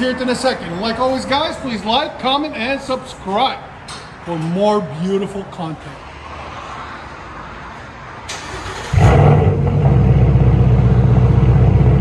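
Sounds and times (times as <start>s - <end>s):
car engine cranking: 8.3s - 10.9s
car engine idling loud: 8.9s - 12.0s.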